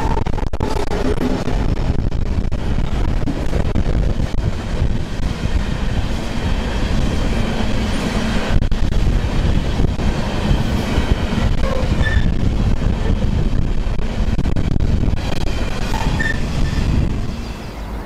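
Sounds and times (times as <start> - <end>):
diesel locomotive passing: 0.0 - 18.0
train wheels rumbling on rails: 0.0 - 18.0.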